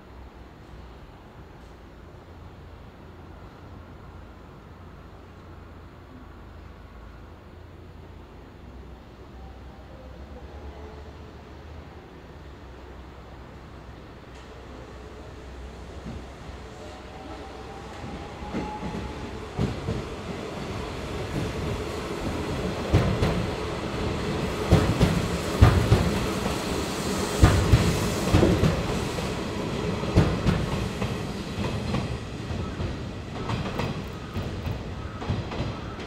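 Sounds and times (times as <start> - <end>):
train wheels clacking over rail joints: 24.7 - 26.6.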